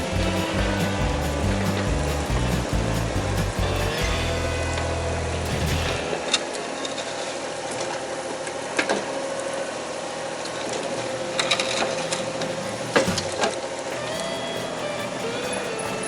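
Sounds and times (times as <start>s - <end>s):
machinery whining: 0.0s - 7.0s.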